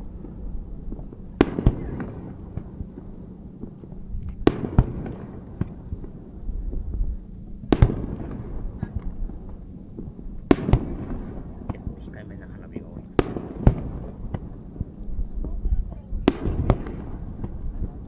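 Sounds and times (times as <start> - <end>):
lighter firework pops: 0.9 - 7.0.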